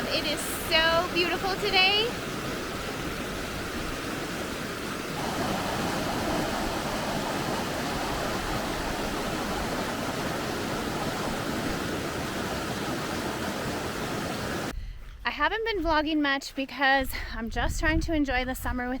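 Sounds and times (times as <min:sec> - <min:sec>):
fast-flowing river water rushing: 0:00.0 - 0:14.7.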